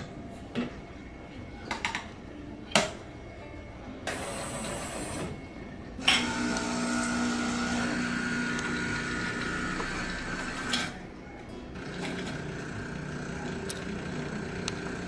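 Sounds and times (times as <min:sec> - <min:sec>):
coffee machine motor humming: 0:06.0 - 0:11.0, 0:11.7 - 0:15.0.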